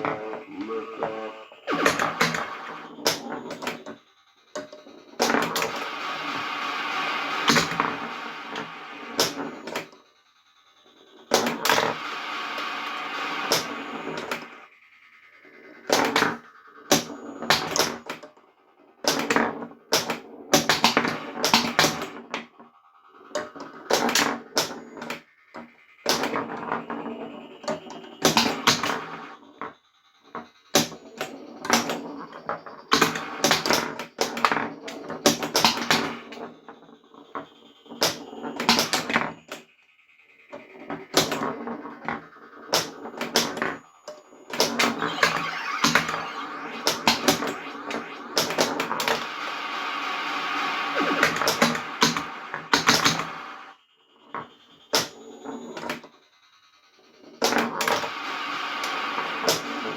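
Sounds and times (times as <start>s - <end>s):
electronic sound effects: 0.0s - 4.0s, 11.3s - 18.2s, 37.4s - 55.9s.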